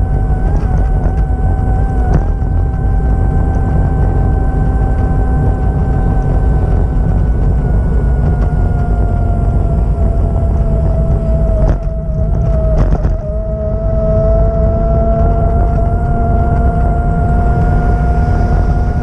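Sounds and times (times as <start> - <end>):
steady whine: 0.0 - 19.0
vehicle engine rumbling: 0.0 - 19.0.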